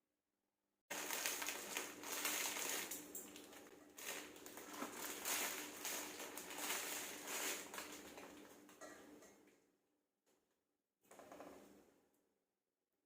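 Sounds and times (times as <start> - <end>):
crinkling and crunching handling noise: 0.9 - 8.9.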